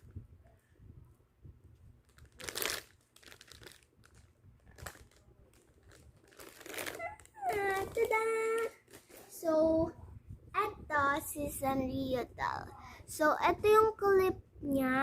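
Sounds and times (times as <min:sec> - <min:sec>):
plastic packaging crinkling: 0:02.0 - 0:09.3.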